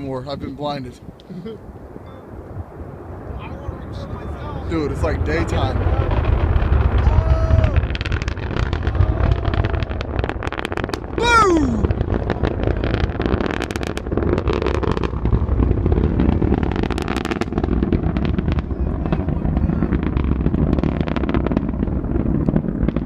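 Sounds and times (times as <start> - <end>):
distant rocket launch rumble: 0.0 - 23.0
person shouting: 7.0 - 7.9, 8.9 - 10.1, 11.2 - 11.9.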